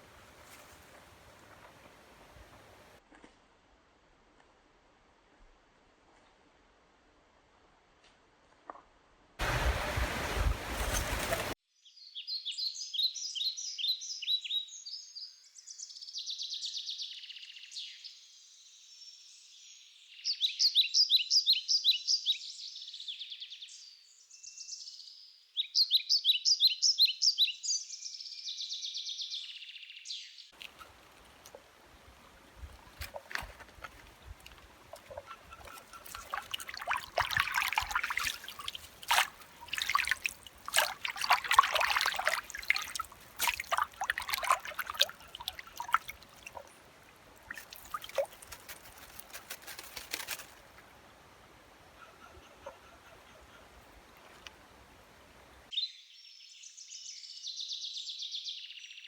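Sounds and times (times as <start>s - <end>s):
stream trickling: 0.0s - 3.0s, 9.4s - 11.6s, 30.5s - 52.0s, 53.6s - 55.7s
clicks and rustles: 32.6s - 41.0s, 47.5s - 50.8s
songbird trilling: 34.6s - 46.7s.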